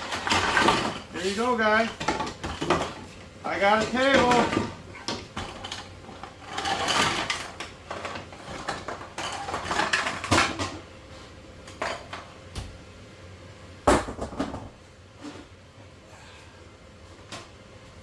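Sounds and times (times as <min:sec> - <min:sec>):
hard objects clattering and scraping: 0:00.0 - 0:10.8.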